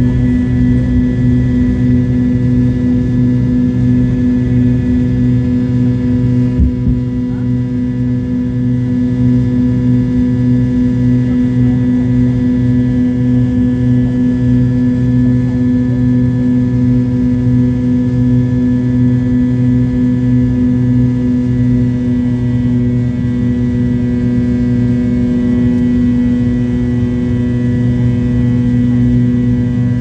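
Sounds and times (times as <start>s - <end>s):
jet engines humming at low power: 0.0s - 30.0s
brief knock: 6.6s - 7.0s.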